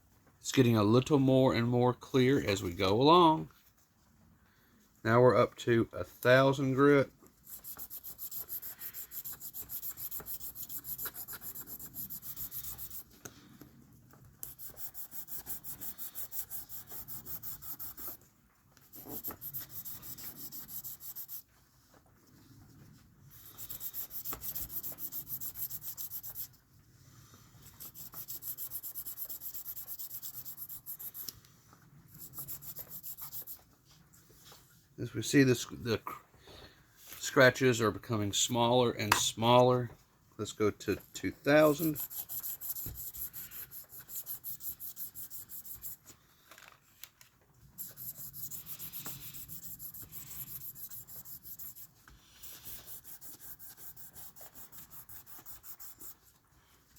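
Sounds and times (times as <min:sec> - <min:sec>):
sandpaper rubbing strokes: 0:07.4 - 0:13.2, 0:14.4 - 0:18.2, 0:18.8 - 0:21.6, 0:23.2 - 0:26.6, 0:27.6 - 0:34.6, 0:41.3 - 0:46.2, 0:47.8 - 0:56.5.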